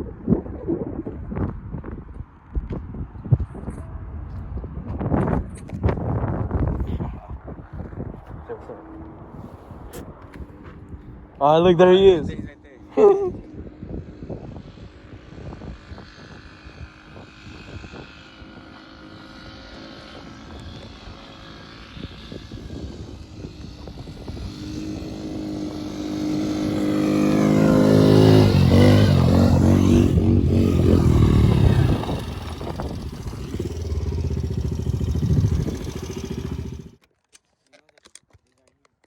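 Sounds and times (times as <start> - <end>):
small motorcycle engine running: 13.7 - 37.0.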